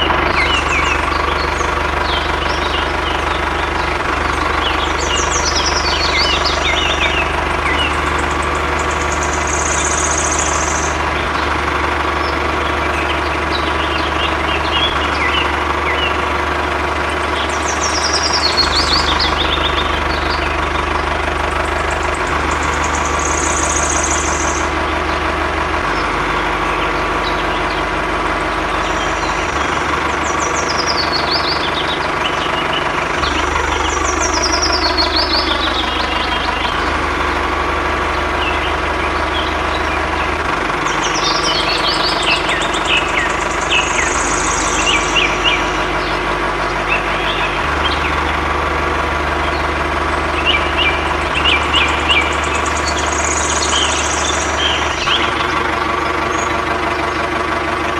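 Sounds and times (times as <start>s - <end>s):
birds chirping: 0.0s - 57.9s
motor humming: 0.0s - 57.9s.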